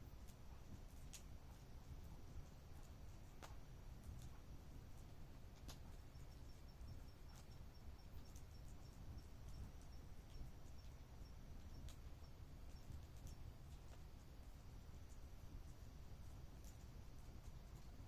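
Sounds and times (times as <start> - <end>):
insect chirping: 5.9 - 14.0.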